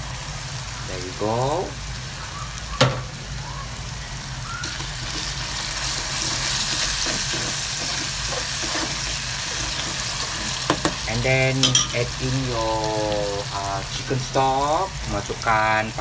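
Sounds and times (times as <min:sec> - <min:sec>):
garlic sizzling in hot oil: 0:00.0 - 0:16.0
metal spoon stirring in pan: 0:04.6 - 0:12.3.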